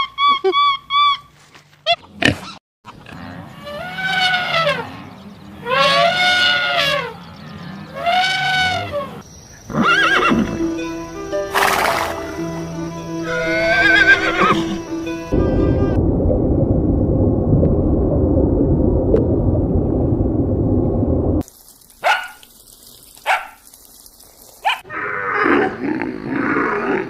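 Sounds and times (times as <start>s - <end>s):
wavering animal call: 3.2s - 10.8s, 11.4s - 14.9s
long rising and falling calls: 9.7s - 15.6s.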